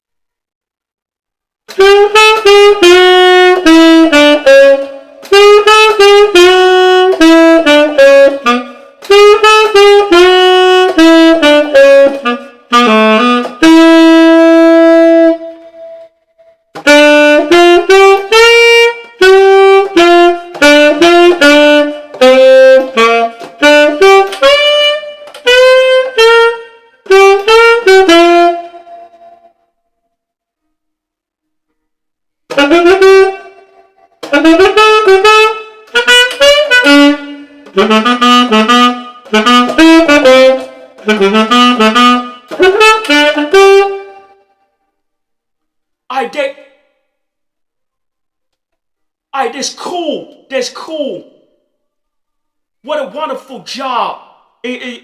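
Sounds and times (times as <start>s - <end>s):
tenor saxophone jazz phrase: 1.7s - 16.0s, 16.8s - 29.5s, 32.5s - 44.3s, 46.1s - 46.9s, 49.4s - 51.5s, 52.9s - 55.0s.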